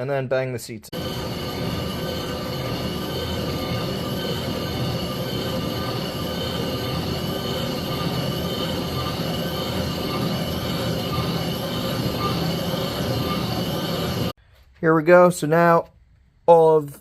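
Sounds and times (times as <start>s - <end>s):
metal-cutting squeal: 1.0s - 14.3s.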